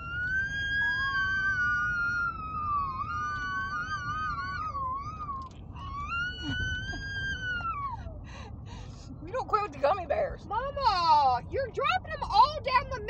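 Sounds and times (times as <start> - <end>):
children imitating a siren: 0.0 - 8.1.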